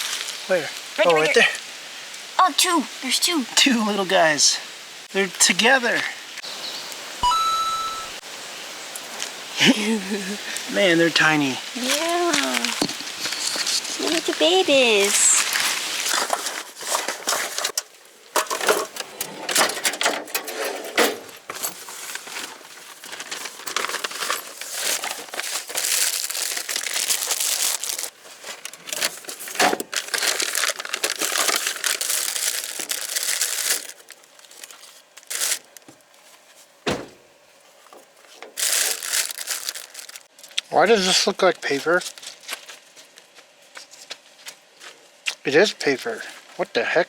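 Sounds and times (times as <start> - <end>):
food packaging crinkling: 11.8 - 14.4, 15.0 - 18.8, 21.4 - 36.4, 38.1 - 40.6, 41.9 - 42.9.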